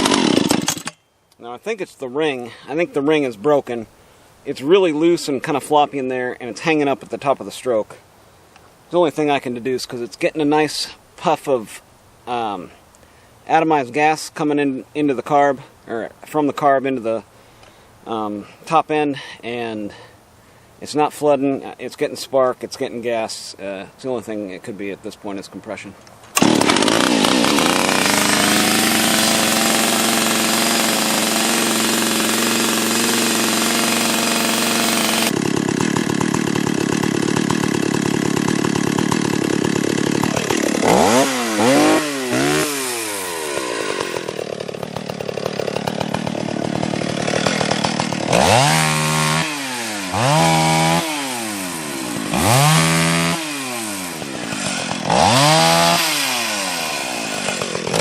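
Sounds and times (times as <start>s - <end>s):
chainsaw revving: 0.0s - 1.0s, 26.3s - 58.0s.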